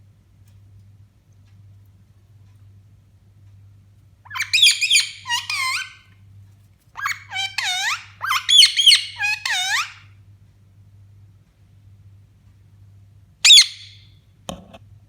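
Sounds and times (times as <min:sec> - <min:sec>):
faint electrical hum: 0:00.0 - 0:15.0
parrot squawking: 0:04.3 - 0:06.0, 0:07.0 - 0:10.1, 0:13.4 - 0:14.0.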